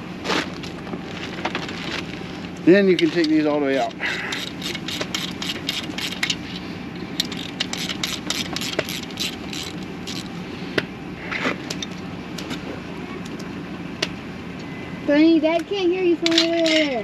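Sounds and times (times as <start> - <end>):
ratchet wrench clicking: 4.3 - 6.4, 7.2 - 10.3.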